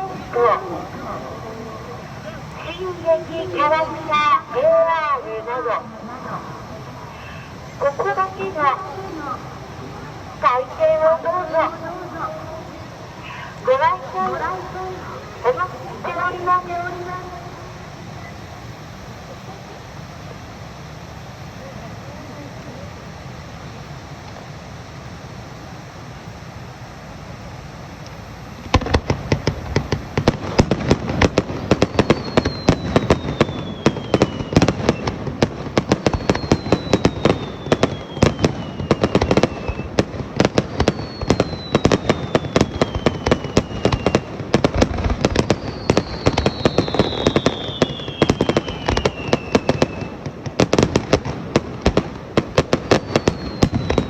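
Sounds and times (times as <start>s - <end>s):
firework bangs: 0.0s - 21.1s, 28.3s - 54.0s
crowd noise: 0.0s - 24.2s, 28.3s - 54.0s
falling firework whistles: 7.0s - 22.0s, 28.0s - 54.0s.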